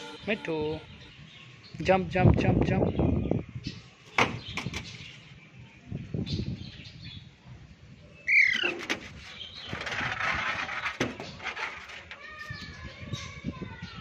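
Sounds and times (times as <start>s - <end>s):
bird chirps: 0.0s - 2.0s.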